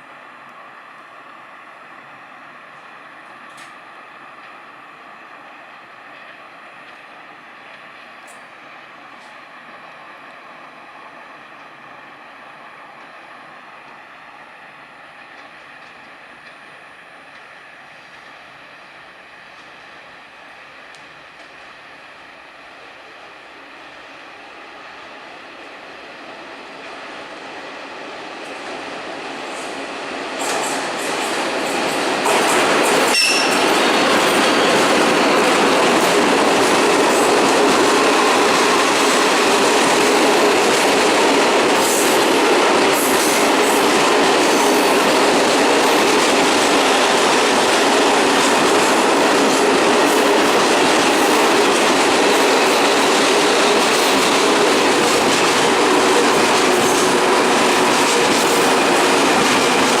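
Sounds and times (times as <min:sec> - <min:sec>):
train wheels on rails: 0:00.0 - 1:00.0
sharp squeal: 0:33.1 - 0:33.7.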